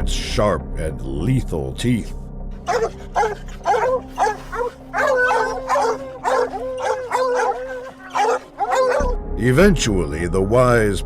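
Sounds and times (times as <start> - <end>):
hunting dogs barking and baying: 2.6 - 9.2.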